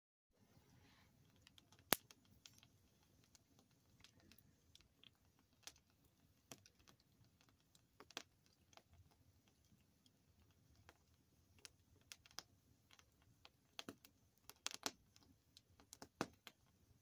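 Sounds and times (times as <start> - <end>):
campfire crackling: 1.3 - 9.1, 10.8 - 17.0.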